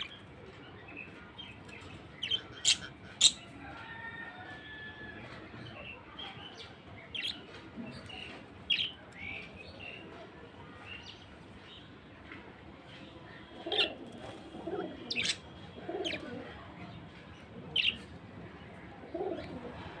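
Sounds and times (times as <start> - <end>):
budgerigar chirping: 2.2 - 3.4
budgerigar warbling chatter: 2.2 - 3.5.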